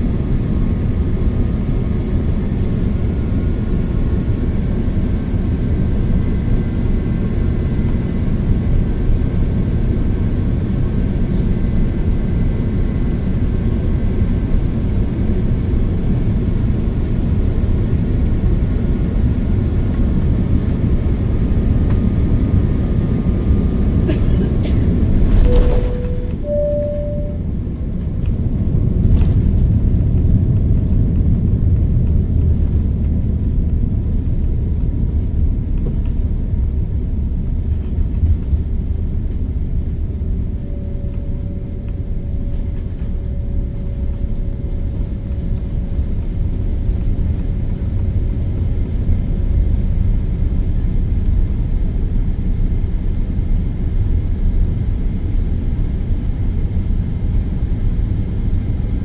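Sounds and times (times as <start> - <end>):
airliner cabin rumble: 0.0 - 59.0
faint steady tone: 25.4 - 27.5.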